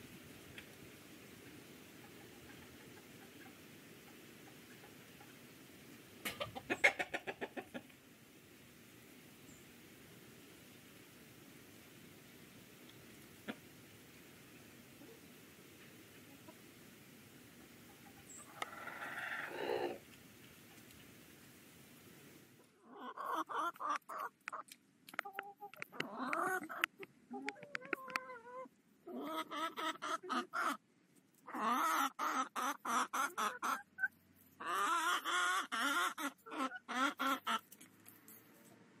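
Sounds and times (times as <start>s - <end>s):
chickens clucking: 1.4s - 8.0s, 12.9s - 13.8s, 14.4s - 21.1s, 22.6s - 30.8s, 31.4s - 37.8s.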